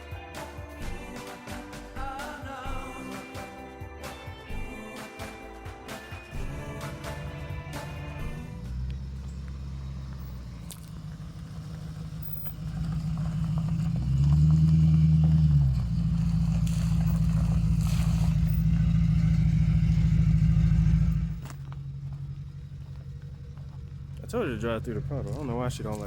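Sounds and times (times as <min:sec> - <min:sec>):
car engine under load: 0:06.1 - 0:26.0.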